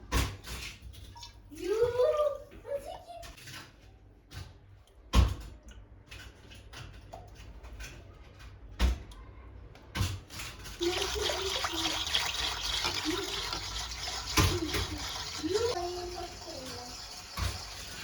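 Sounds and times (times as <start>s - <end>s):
water running: 10.7s - 18.0s.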